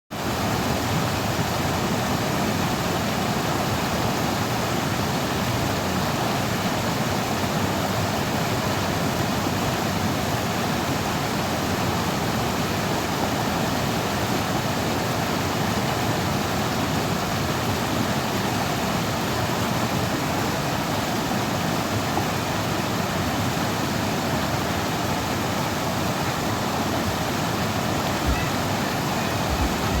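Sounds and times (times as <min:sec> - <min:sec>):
river water over rocks: 0:00.2 - 0:30.0
low bumps: 0:28.2 - 0:30.0.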